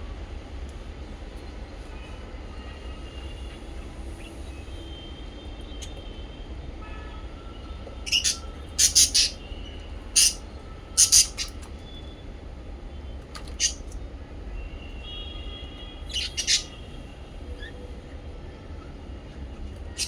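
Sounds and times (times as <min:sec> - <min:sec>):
parrots chirping: 0:08.0 - 0:09.4, 0:10.1 - 0:11.6, 0:13.5 - 0:14.0, 0:16.1 - 0:16.8.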